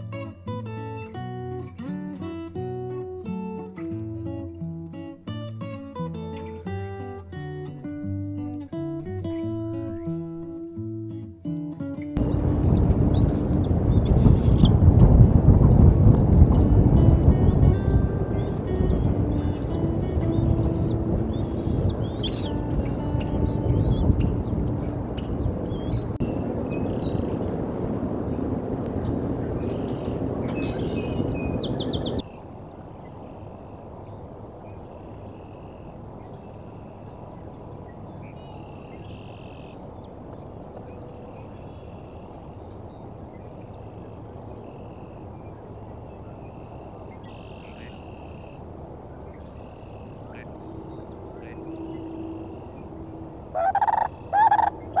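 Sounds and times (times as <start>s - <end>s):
wind buffeting microphone: 12.2s - 35.2s
waterbirds calling: 12.2s - 55.0s.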